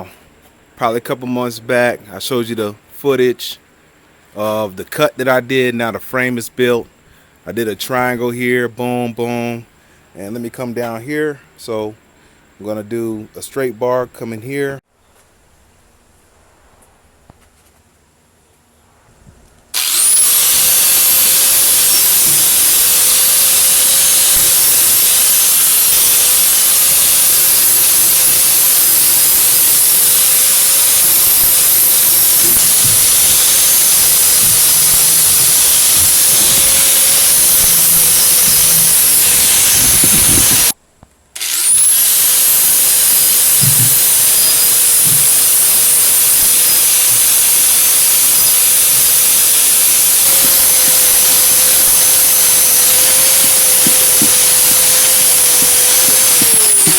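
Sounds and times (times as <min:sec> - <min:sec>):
angle grinder grinding metal: 0:19.8 - 0:40.8, 0:41.4 - 0:56.9.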